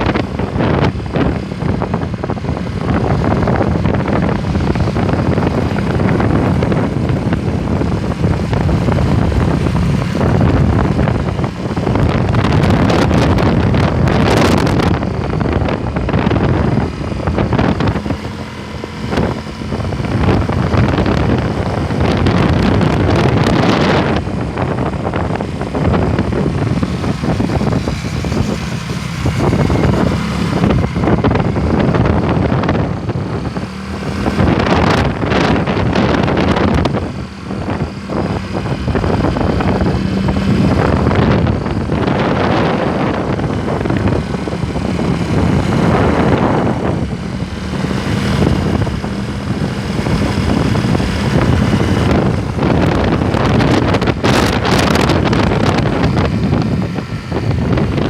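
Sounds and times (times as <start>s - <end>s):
vehicle engine running: 0.0s - 58.0s
wind buffeting microphone: 0.0s - 58.0s.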